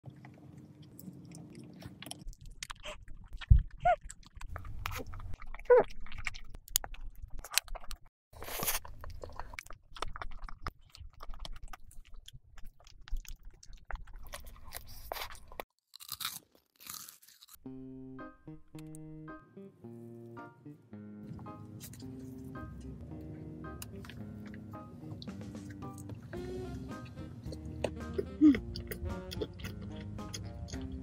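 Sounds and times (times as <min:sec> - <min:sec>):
biting and crunching food: 0:00.0 - 0:17.7, 0:27.0 - 0:31.0
simple tune: 0:17.6 - 0:31.0.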